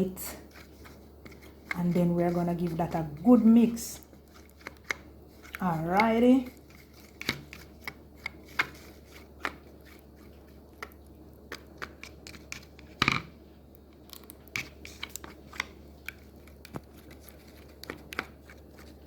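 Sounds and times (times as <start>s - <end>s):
utensil tapping bowl: 4.8s - 6.2s.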